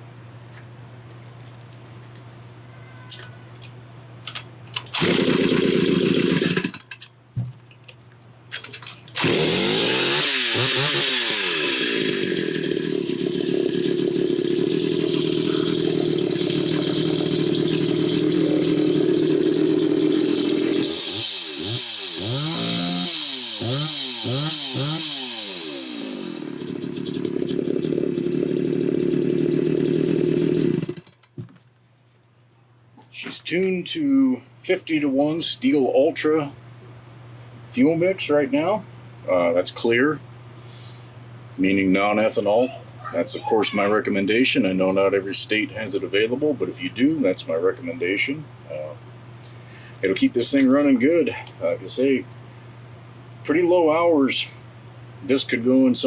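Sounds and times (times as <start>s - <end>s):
chainsaw starting and revving: 4.9s - 6.8s, 9.2s - 31.2s.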